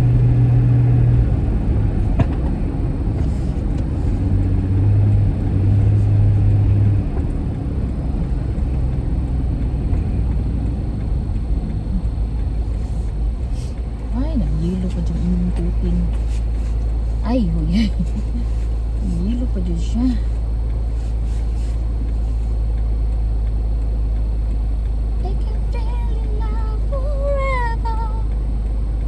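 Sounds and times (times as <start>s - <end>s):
car engine rumble inside cabin: 0.0s - 29.0s.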